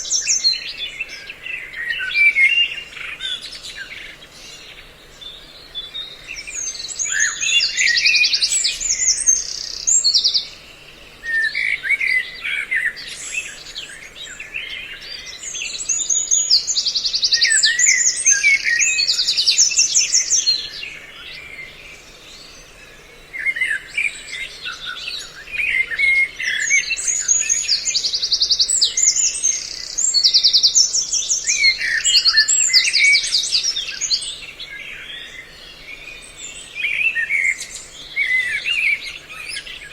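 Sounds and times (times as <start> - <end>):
recorded songbird calls: 0.0 - 39.9.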